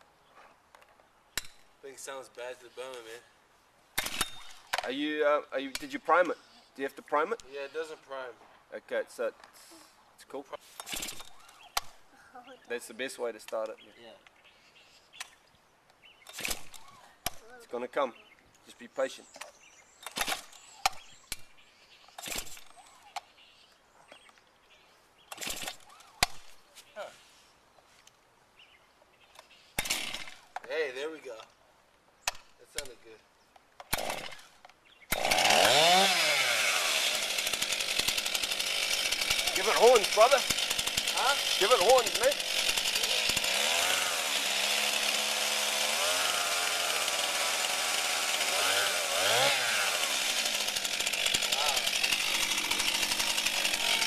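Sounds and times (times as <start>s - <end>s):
chainsaw idling and revving: 29.8s - 30.4s, 33.9s - 54.0s
starter cord rasping whir: 35.1s - 54.0s.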